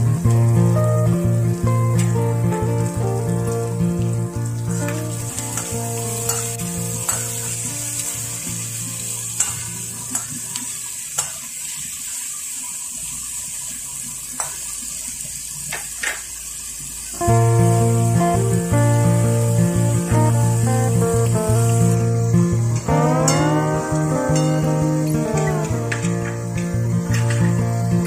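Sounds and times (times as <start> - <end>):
quiet background music: 0.0 - 10.6, 17.2 - 28.0
food sizzling in a pan: 0.0 - 28.0.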